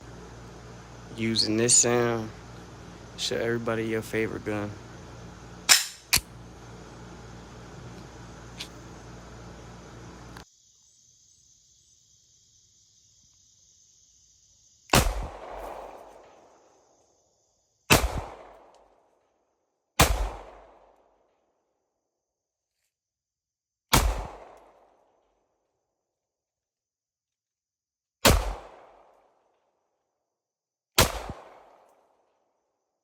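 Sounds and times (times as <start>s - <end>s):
pistol shots with echo: 5.7s - 6.2s, 20.0s - 20.6s, 23.9s - 24.5s, 28.3s - 28.9s, 31.0s - 31.7s.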